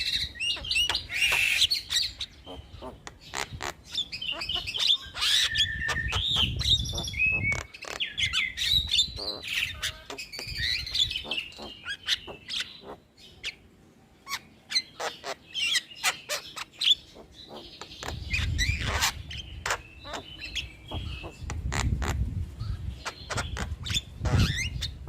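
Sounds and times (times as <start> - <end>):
bird clicking calls: 10.0 - 13.0.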